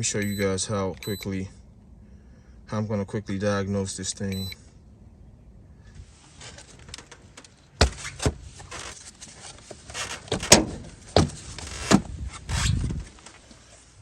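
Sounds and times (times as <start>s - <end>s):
rustling: 5.9s - 14.0s.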